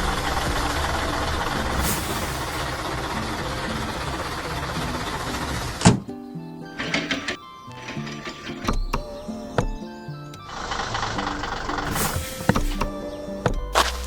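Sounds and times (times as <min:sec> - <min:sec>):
truck engine running: 0:00.0 - 0:06.0, 0:06.8 - 0:14.0
background music: 0:00.0 - 0:14.0
air hiss: 0:11.8 - 0:12.9.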